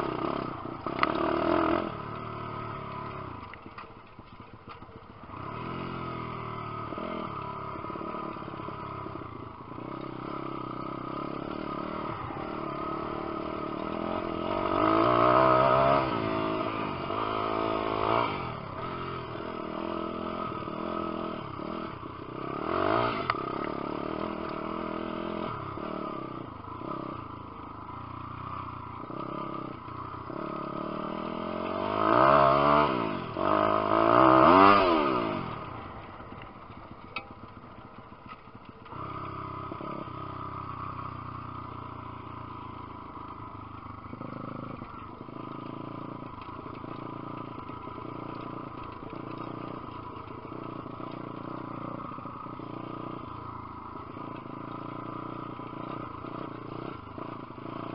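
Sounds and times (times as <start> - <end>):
pit bike engine revving: 0.0 - 3.6, 5.2 - 57.9.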